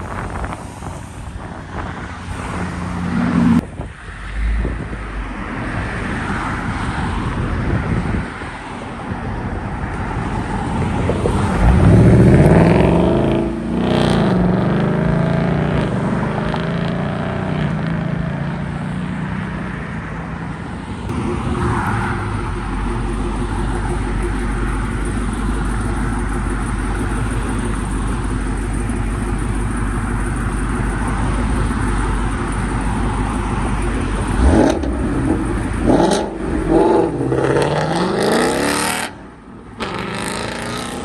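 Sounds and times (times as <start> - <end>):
car engines running: 0.0 - 41.0
car accelerating hard: 11.1 - 18.2, 21.1 - 39.2, 39.8 - 41.0.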